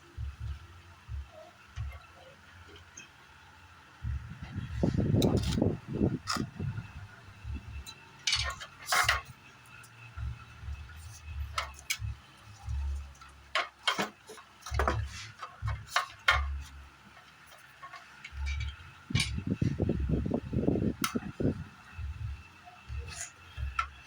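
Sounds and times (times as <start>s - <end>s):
dull low thumps: 0.1s - 2.0s, 4.0s - 7.9s, 10.0s - 13.2s, 14.7s - 16.9s, 18.4s - 24.0s
metallic clicks and clinks: 7.4s - 19.6s.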